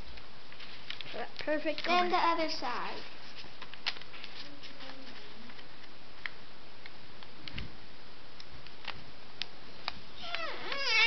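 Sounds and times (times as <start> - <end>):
background hiss: 0.0 - 11.0
paper being folded and creased: 0.5 - 5.9.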